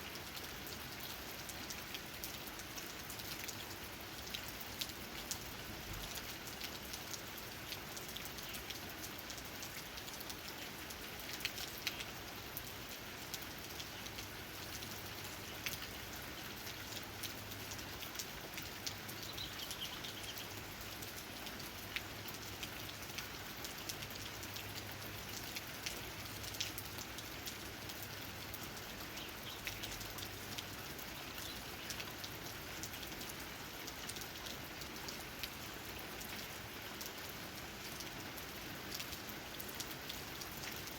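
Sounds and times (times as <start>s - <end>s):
rain falling: 0.0s - 40.9s
raindrops ticking on leaves: 0.0s - 40.9s.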